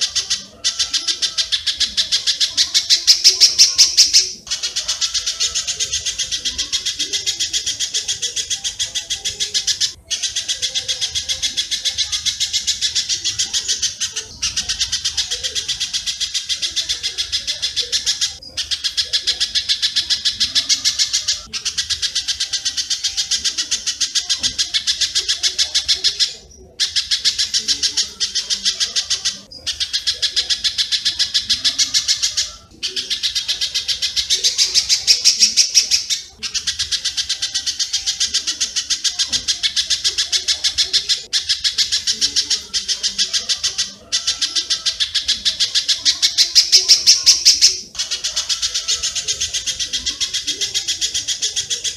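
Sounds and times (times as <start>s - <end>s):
rapid repeated bird chirps: 0.0s - 51.9s.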